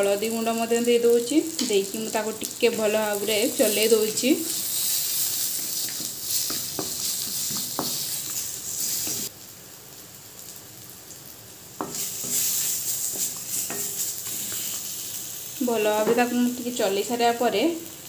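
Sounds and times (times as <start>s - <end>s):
mango sizzling in hot oil: 0.0s - 18.0s
metal spatula scraping a pan: 3.6s - 9.3s, 11.8s - 15.1s.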